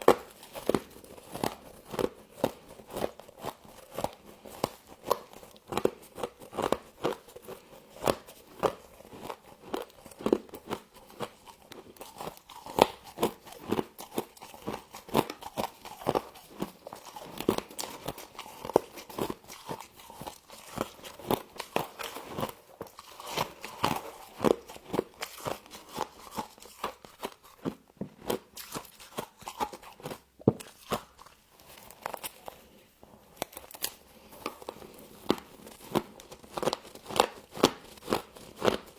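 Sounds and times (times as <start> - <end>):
frost being chewed crunching: 0.0 - 38.9.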